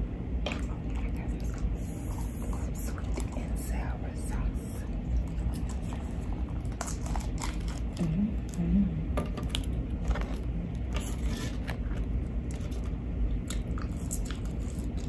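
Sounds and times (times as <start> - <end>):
plastic cup crinkling: 5.1 - 8.6, 9.2 - 15.0.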